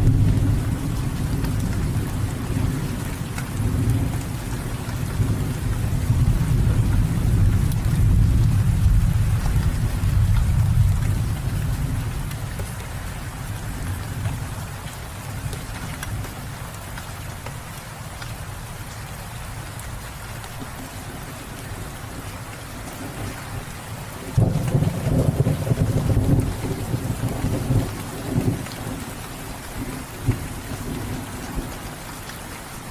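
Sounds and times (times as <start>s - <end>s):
thunder rumbling: 0.0s - 12.3s, 22.9s - 31.8s
steady rain: 0.0s - 32.9s.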